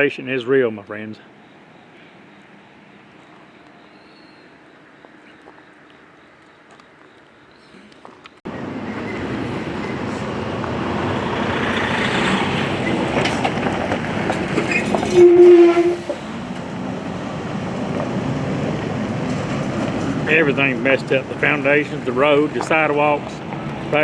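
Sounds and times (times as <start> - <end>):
heavy vehicle rumbling past: 8.5 - 24.0
short horn blast: 15.0 - 16.2.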